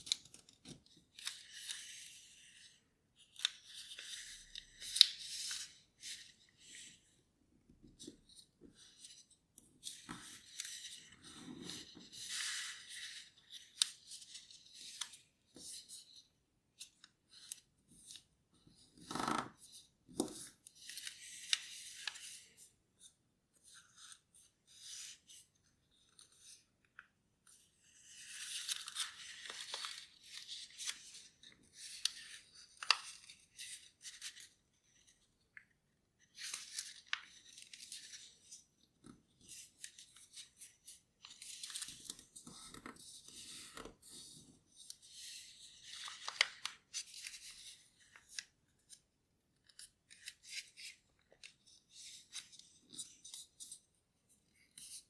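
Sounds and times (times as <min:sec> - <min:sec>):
paper rustling and crinkling: 0:28.0 - 0:35.2, 0:39.4 - 0:49.0.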